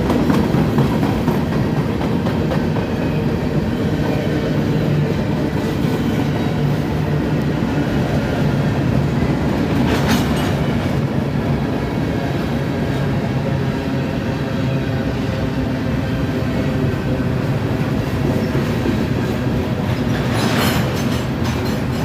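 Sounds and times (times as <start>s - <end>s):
train wheels clickety-clack: 0.0s - 11.2s, 17.5s - 22.0s.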